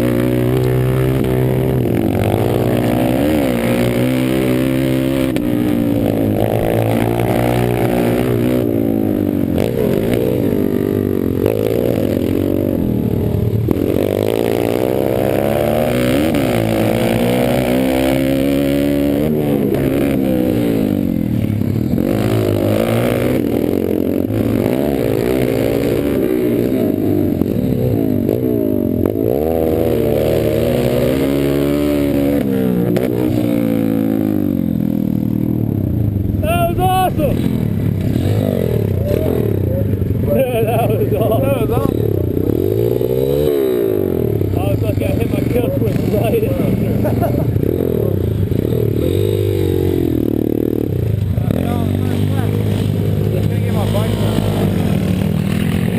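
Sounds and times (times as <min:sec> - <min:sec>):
dirt bike engines revving: 0:00.0 - 0:55.9.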